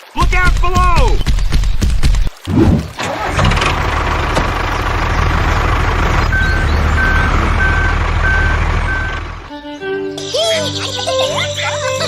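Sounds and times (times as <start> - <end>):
truck engine running: 2.6 - 9.5
reversing alarm beeping: 6.3 - 9.3.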